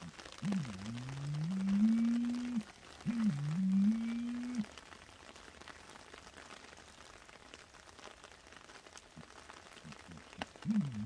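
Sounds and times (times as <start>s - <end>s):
light rain on leaf litter: 0.0s - 11.0s.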